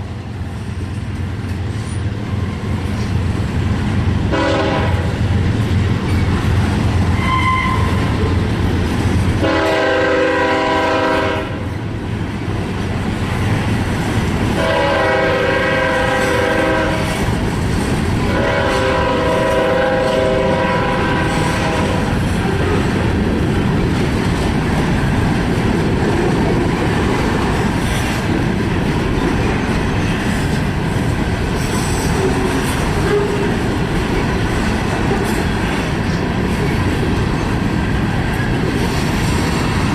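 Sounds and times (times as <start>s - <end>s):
train wheels on rails: 0.0s - 39.9s
locomotive horn blasts: 4.3s - 5.2s, 7.2s - 8.1s, 9.4s - 11.7s, 14.6s - 17.3s, 18.3s - 22.1s.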